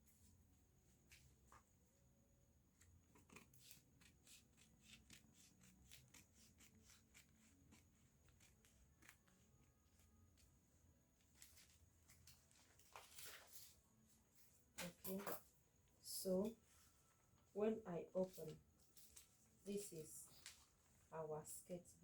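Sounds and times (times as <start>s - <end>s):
paper rustling and clicking: 11.2s - 13.8s.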